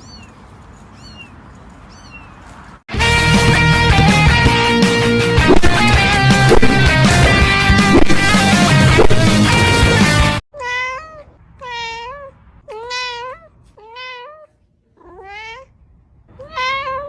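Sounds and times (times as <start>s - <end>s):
loud guitar music: 2.9s - 10.4s
cat meowing: 10.5s - 17.0s.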